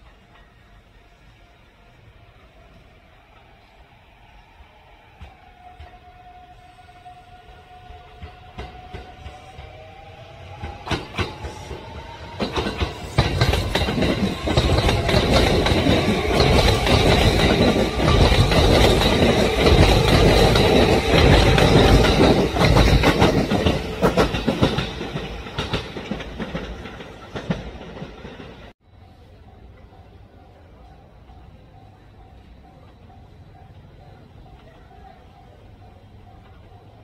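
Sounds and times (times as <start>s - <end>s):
train wheels clacking over rail joints: 8.1s - 9.9s, 10.5s - 28.7s.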